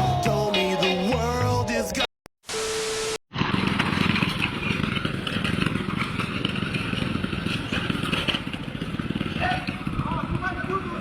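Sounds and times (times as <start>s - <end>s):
vehicle engine rattling: 3.4s - 11.0s.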